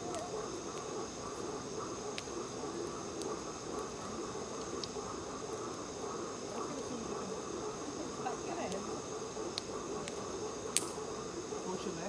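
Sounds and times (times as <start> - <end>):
campfire crackling: 0.0 - 12.0
frogs croaking: 0.0 - 12.0
insects trilling: 0.0 - 12.0.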